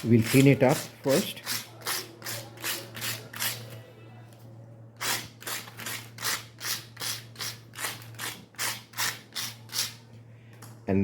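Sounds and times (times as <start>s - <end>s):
sandpaper rubbing metal mesh: 0.0s - 3.7s.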